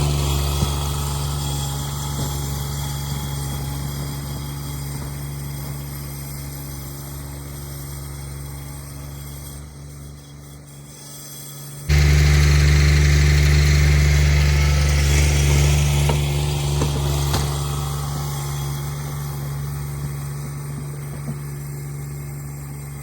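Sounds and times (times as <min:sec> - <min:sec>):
garden tractor engine running: 0:00.0 - 0:10.7, 0:11.6 - 0:23.0.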